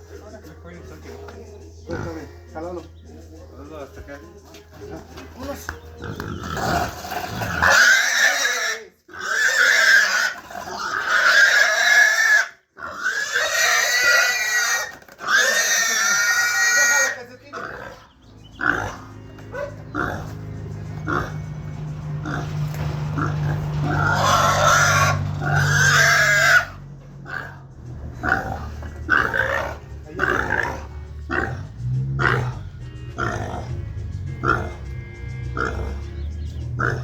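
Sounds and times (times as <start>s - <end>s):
pig grunting: 1.8s - 2.3s, 6.0s - 35.0s, 35.6s - 37.0s
pig squealing: 6.0s - 21.5s, 22.2s - 33.8s, 34.4s - 34.9s, 35.6s - 36.1s, 36.7s - 37.0s.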